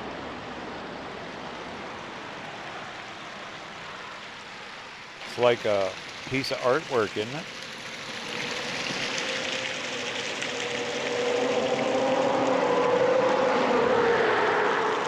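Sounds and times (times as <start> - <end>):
water rushing down a mound: 0.0 - 15.0
passing vehicle engine: 8.5 - 15.0.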